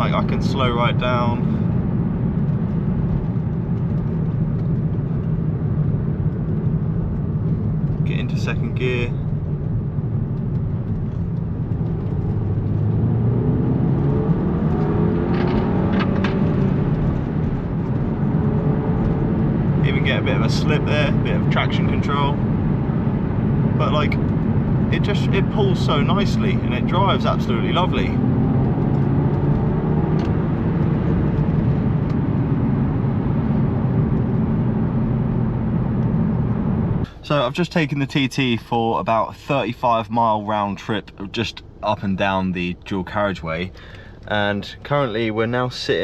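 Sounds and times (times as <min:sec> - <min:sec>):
road noise: 0:00.0 - 0:46.0
car engine revving under full throttle: 0:11.0 - 0:37.1.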